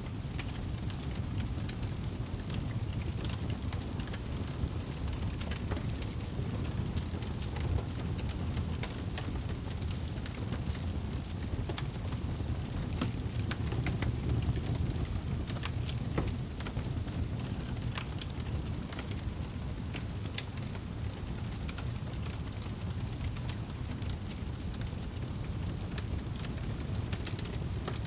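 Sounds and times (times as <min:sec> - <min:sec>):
low rumble of flames: 0:00.0 - 0:28.0
firewood popping and snapping: 0:00.3 - 0:28.0.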